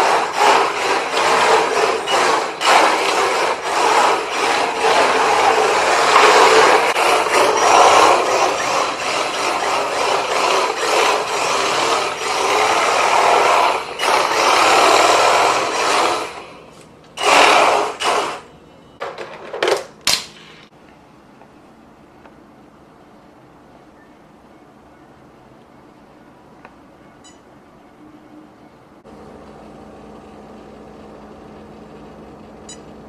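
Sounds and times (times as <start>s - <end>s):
rc car electric motor: 0.0s - 16.6s, 17.2s - 18.5s
tyres scrubbing on floor: 0.0s - 16.6s.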